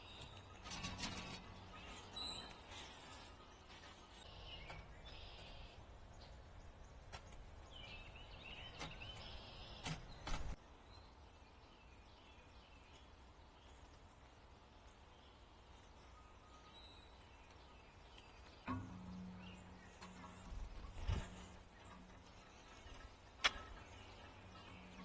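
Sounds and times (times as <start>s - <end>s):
faint songbirds chirping: 0.0s - 25.0s
low outdoor rumble: 10.1s - 25.0s.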